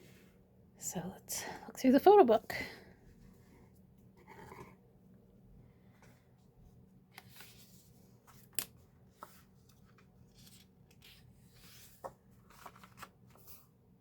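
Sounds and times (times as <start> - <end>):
paper pages rustling: 7.2 - 13.8.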